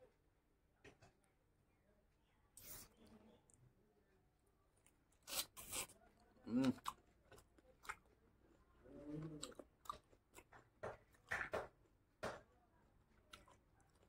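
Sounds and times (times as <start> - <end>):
chewing fatty meat: 4.8 - 11.5, 13.1 - 14.0.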